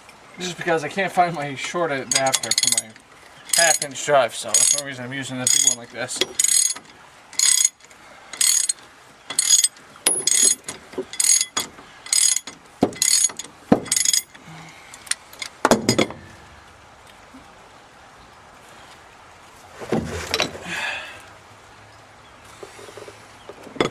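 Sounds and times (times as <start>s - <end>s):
ratchet clicking: 4.6s - 4.9s, 5.5s - 7.8s, 8.4s - 14.4s.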